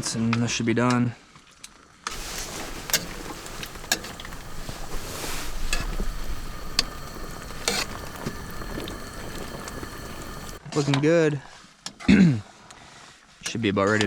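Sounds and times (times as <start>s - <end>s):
soup simmering and bubbling: 2.1s - 10.6s
utensil clinking against pot: 2.1s - 10.6s.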